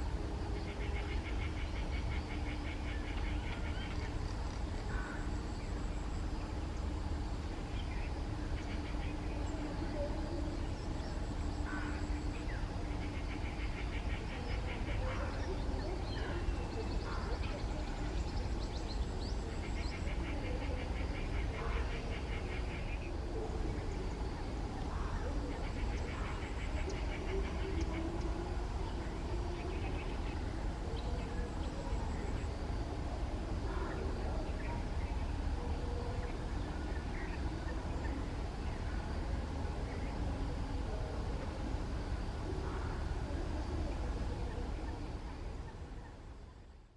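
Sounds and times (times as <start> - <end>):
bird calls: 7.5 - 33.0.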